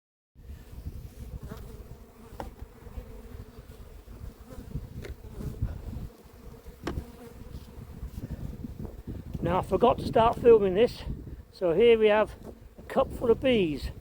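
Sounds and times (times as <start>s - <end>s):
honeybees buzzing: 0.4s - 14.0s.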